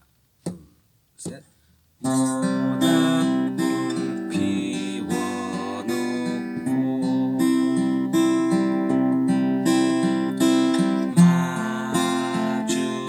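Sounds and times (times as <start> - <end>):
guitar strumming: 2.0 - 13.0.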